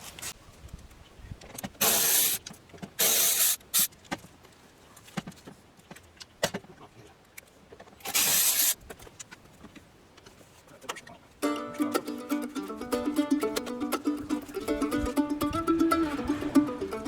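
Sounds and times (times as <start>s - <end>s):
faint handling noise: 3.9s - 11.4s.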